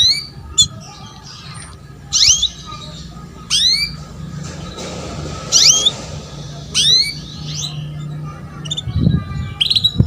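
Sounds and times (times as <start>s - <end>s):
canary chirping: 0.0s - 10.0s
steady low hum: 0.3s - 10.0s.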